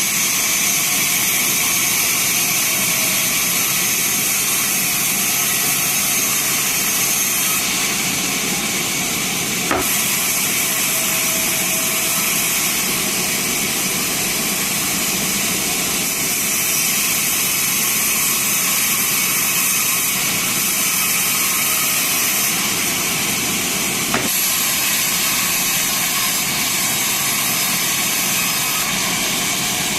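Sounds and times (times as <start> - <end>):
band saw cutting wood: 0.0 - 29.9
sharp knocks: 9.7 - 10.0, 24.1 - 24.5.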